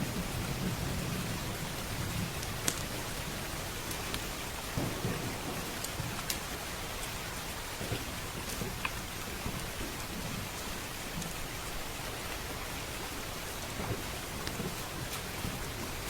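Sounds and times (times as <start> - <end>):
rolling thunder: 0.0 - 10.3
steady rain: 0.0 - 16.0
wood fire popping: 1.4 - 16.0.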